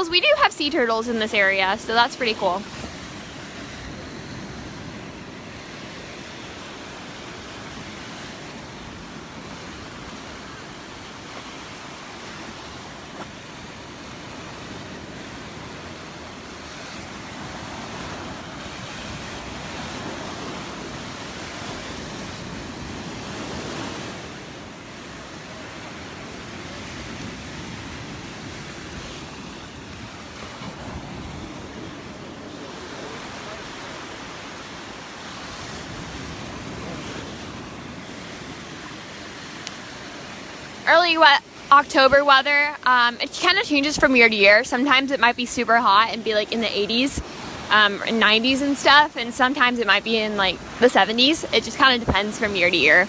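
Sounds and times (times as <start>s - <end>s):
surf breaking on beach: 0.0s - 53.0s
wind on microphone: 45.4s - 53.0s.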